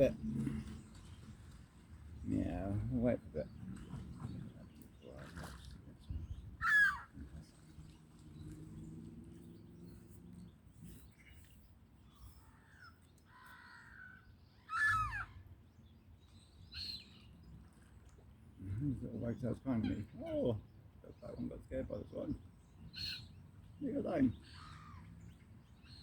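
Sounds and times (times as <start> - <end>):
harsh bird squawks: 6.6 - 7.1, 14.7 - 15.4.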